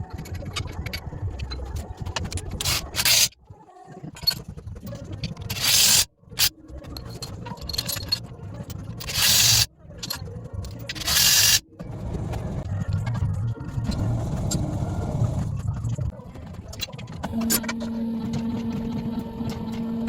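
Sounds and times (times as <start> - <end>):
low rumble of machinery: 6.2 - 20.0.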